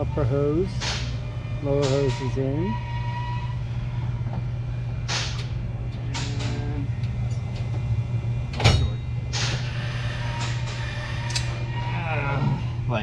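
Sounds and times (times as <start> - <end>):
steady low hum: 0.0 - 13.0
knocks and clicks of tools: 0.8 - 2.2.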